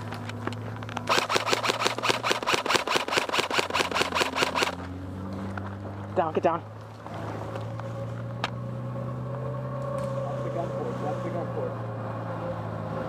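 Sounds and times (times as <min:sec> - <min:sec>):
low engine hum: 0:00.0 - 0:13.0
airsoft gun full-auto burst: 0:01.1 - 0:04.8.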